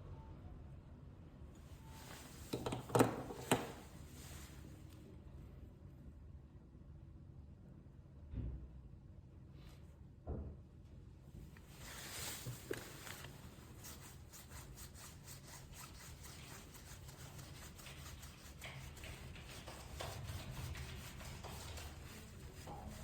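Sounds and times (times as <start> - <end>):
faint rubbing: 11.7 - 23.0.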